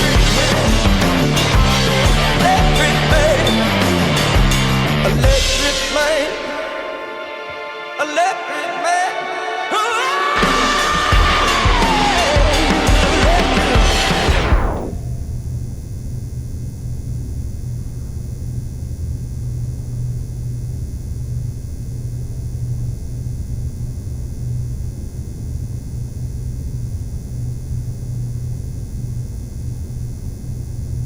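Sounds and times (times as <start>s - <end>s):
low rumbling drone: 10.4s - 31.0s.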